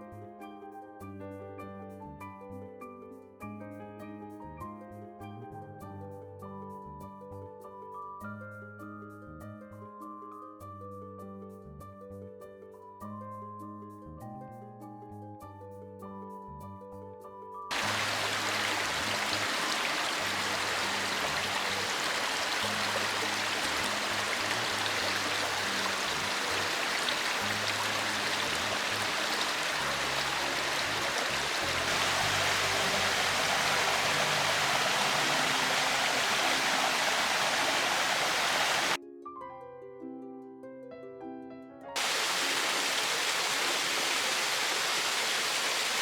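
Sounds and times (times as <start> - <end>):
quiet background music: 0.0 - 42.0
waterfall rushing: 17.7 - 39.0, 42.0 - 46.0.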